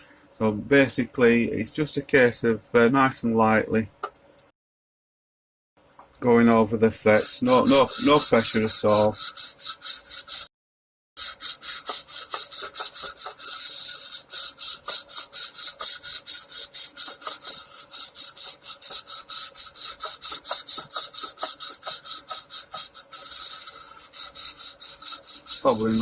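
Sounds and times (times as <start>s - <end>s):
file scraping metal frets: 7.0s - 10.5s, 11.2s - 26.0s.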